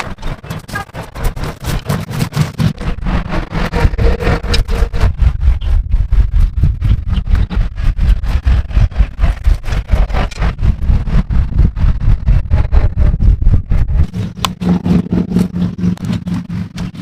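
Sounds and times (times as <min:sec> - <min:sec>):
small engine running: 0:14.0 - 0:17.0.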